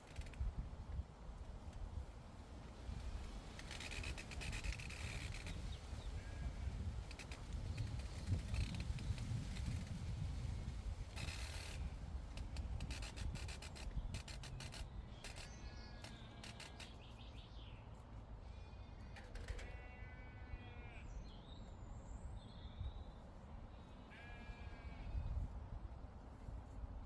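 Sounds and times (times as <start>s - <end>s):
wind rumble on microphone: 0.0s - 15.1s, 24.5s - 27.0s
rustling clicks: 11.1s - 17.0s
small birds chirping: 12.9s - 18.0s.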